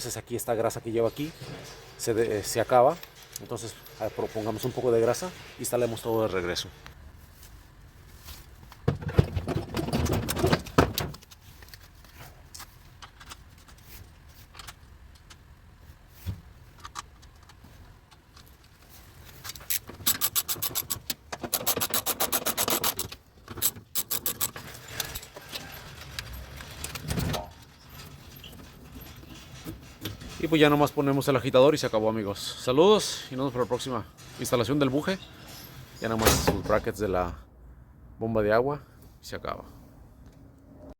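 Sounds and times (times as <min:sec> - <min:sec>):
metal parts clinking and rattling: 0:01.2 - 0:05.6, 0:16.7 - 0:31.0.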